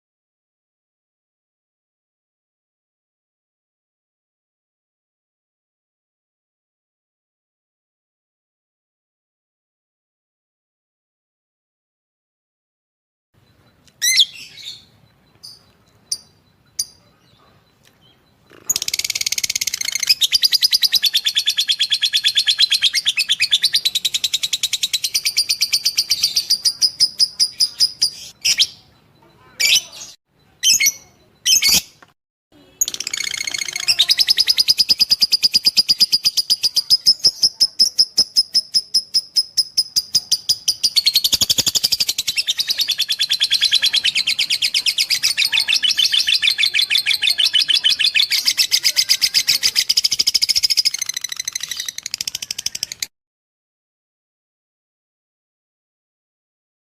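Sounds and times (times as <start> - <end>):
lovebird chattering: 13.7 - 32.0, 32.6 - 53.1.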